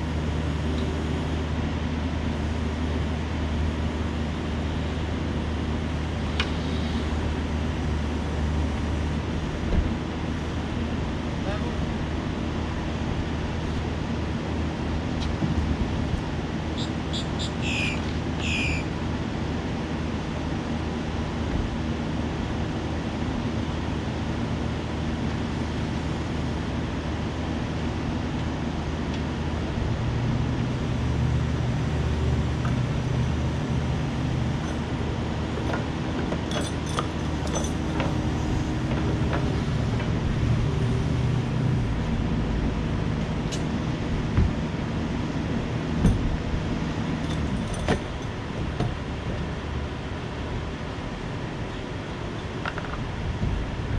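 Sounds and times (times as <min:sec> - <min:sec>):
diesel engine running: 0:00.0 - 0:53.9
short high squeaks: 0:16.8 - 0:18.9
metallic clinks: 0:36.5 - 0:38.0.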